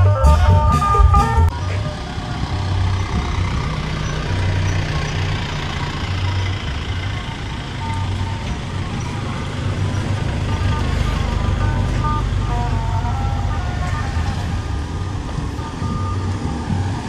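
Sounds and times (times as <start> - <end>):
drum music: 0.0 - 2.2
outdoor background noise: 0.0 - 17.0
vehicle engine running: 0.0 - 17.0.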